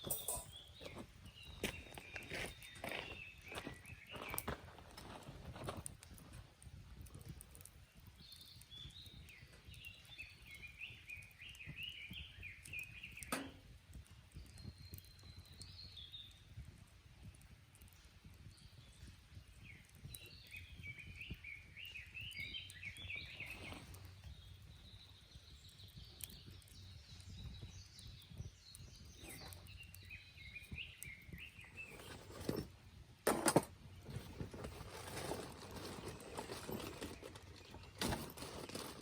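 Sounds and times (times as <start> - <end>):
bird chirping: 0.0 - 5.2, 8.0 - 13.5, 18.5 - 32.6.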